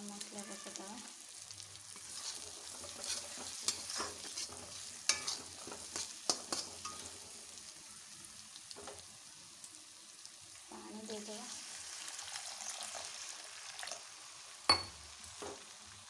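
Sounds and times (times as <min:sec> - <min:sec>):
paste sizzling in oil: 0:00.0 - 0:16.0
metal spatula scraping pan: 0:01.9 - 0:07.4.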